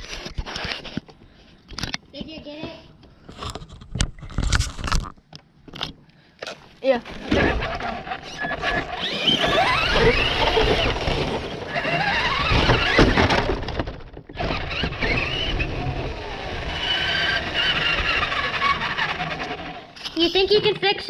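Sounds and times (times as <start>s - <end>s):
wheels rumbling on ground: 7.0s - 21.0s
toy car motor whining: 7.1s - 13.6s, 14.3s - 20.6s.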